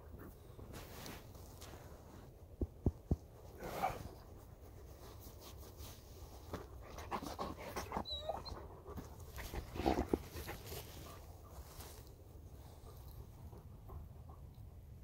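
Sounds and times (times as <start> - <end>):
dog panting: 6.8 - 11.6.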